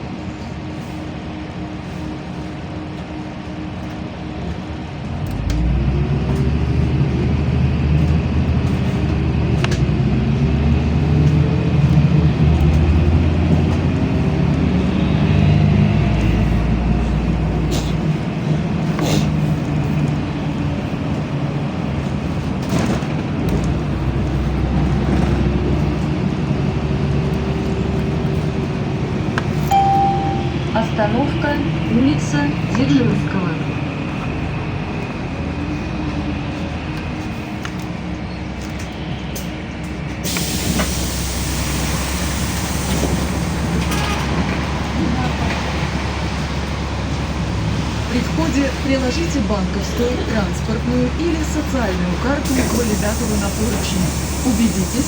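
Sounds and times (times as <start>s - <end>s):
bus engine accelerating: 0.0s - 55.0s
knocks and rattles from bus body: 22.4s - 24.0s.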